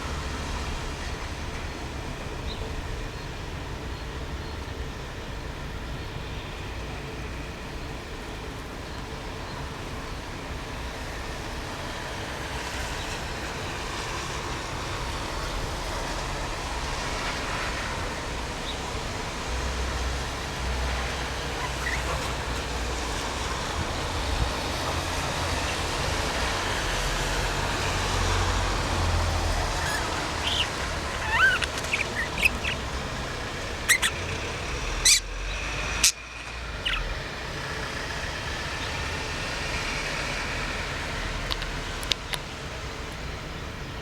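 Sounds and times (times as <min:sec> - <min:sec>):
low rumbling background noise: 0:00.0 - 0:44.0
budgerigar chirping: 0:28.8 - 0:37.1.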